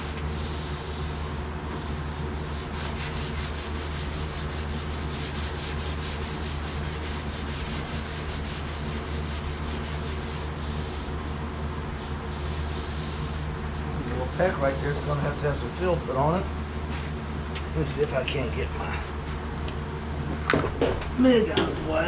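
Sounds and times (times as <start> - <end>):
sandpaper sanding sheet metal: 0.0 - 13.6, 14.4 - 16.1
fan humming: 0.0 - 22.0.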